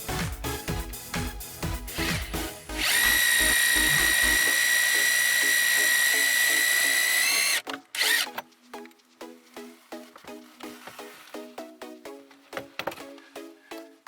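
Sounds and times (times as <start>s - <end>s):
background music: 0.0s - 14.0s
electric drill whining: 2.8s - 8.3s.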